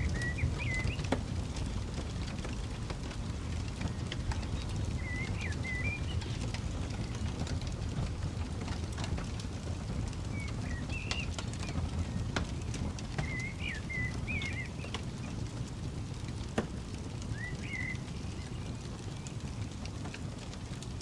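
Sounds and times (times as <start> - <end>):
bird singing wavering phrases: 0.0 - 1.1, 3.9 - 7.2, 10.3 - 12.2, 13.1 - 15.5, 17.3 - 19.3
campfire crackling and popping: 0.0 - 21.0
low steady rumble: 0.0 - 21.0.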